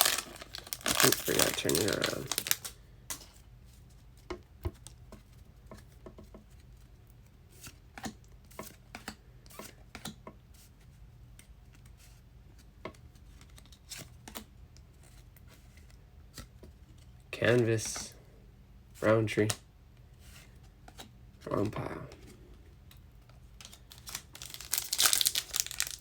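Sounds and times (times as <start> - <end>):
cards being flipped through: 0.0 - 2.8, 23.6 - 26.0.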